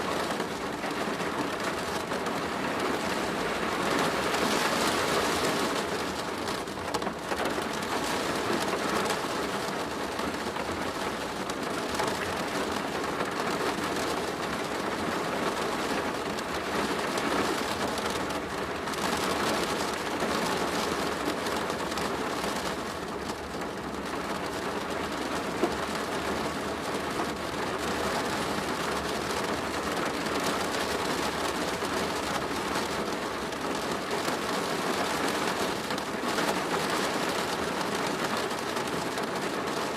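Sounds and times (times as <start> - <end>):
rain on a plastic roof: 0.0 - 39.9.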